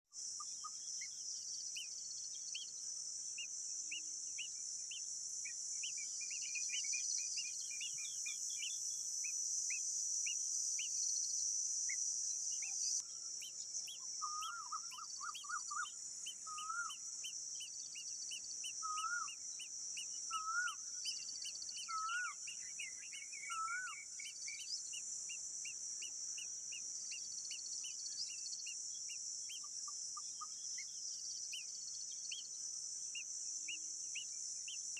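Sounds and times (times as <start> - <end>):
high-pitched insect drone: 10.8 - 34.9.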